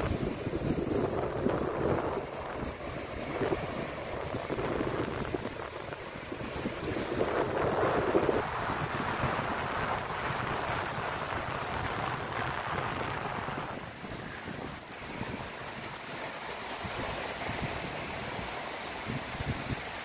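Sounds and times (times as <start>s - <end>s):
ocean surf washing ashore: 0.0s - 20.0s
wind buffeting microphone: 0.0s - 20.0s.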